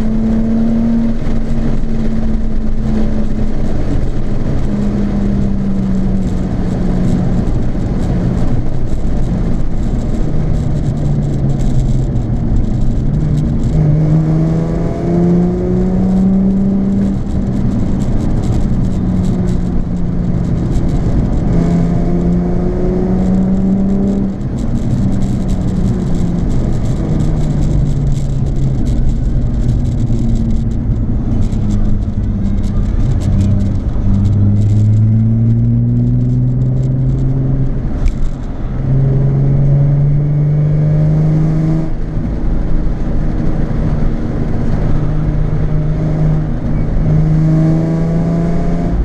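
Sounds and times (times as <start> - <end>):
car exhaust while driving: 0.0 - 49.0.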